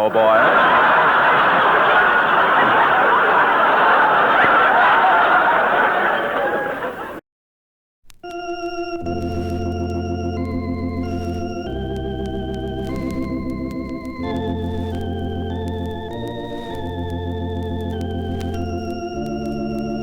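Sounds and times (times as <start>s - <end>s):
organ bass line: 0.0s - 4.0s, 8.2s - 20.0s
electric organ chords: 0.0s - 4.2s, 8.1s - 20.0s.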